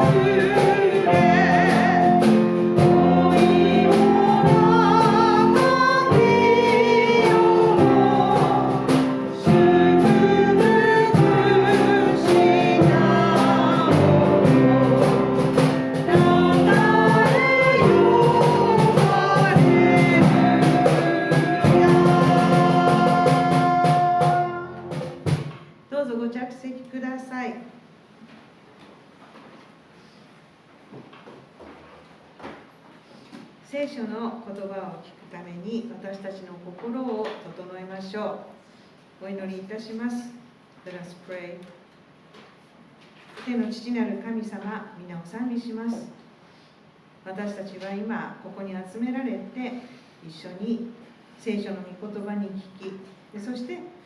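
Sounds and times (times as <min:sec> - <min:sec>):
congregation singing a hymn: 0:00.0 - 0:25.2
instrumental accompaniment: 0:00.0 - 0:25.7.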